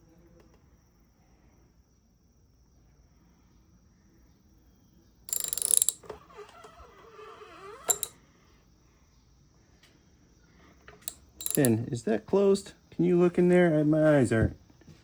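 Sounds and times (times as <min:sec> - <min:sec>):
engine crankshaft ratcheting: 0:05.3 - 0:06.0, 0:07.9 - 0:08.1, 0:11.0 - 0:11.8
rapid clicks: 0:05.3 - 0:06.0, 0:11.4 - 0:11.8
wavering squeak: 0:06.0 - 0:08.2.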